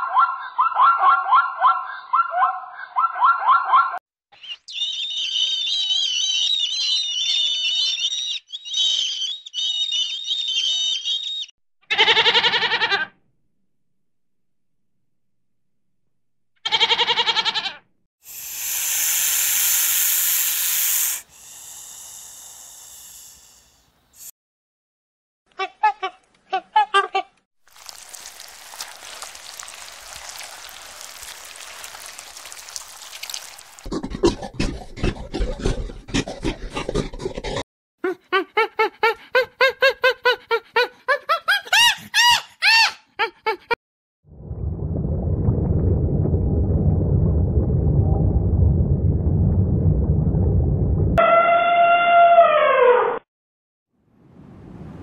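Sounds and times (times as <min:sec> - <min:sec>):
primate hooting and shrieking: 0:04.4 - 0:11.5
goat bleating: 0:11.9 - 0:13.1, 0:16.7 - 0:17.8
snake hissing: 0:18.2 - 0:24.3
panting grunts: 0:33.9 - 0:37.6.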